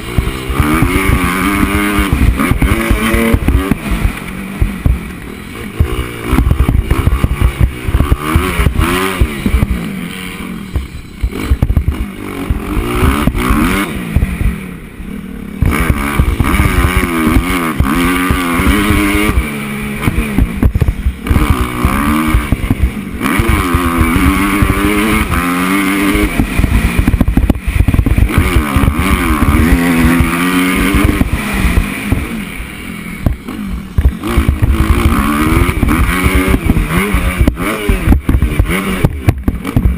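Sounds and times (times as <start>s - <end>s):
motocross bike engine revving: 0.0s - 39.9s
wind rumble on microphone: 26.2s - 32.4s.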